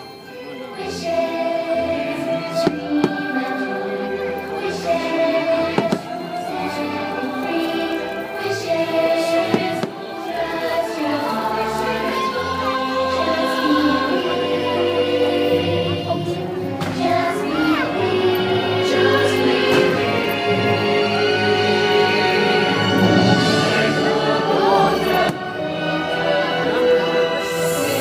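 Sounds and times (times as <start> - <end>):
choir singing: 0.0 - 28.0
orchestral music: 0.0 - 28.0.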